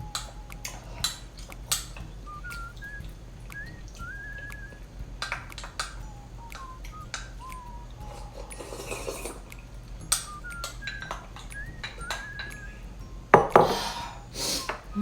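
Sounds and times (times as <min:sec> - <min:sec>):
mouth clicks and smacks eating: 0:00.0 - 0:12.7
faint whistle-like tones: 0:00.0 - 0:15.0
spoon clinking against a bowl: 0:00.1 - 0:03.0, 0:06.6 - 0:12.7.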